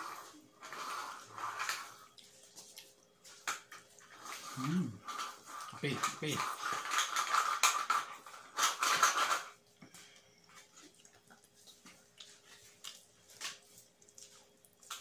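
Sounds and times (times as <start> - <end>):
soft chewing: 1.1 - 6.5, 9.6 - 15.0
slurping sips of coffee: 4.2 - 5.8.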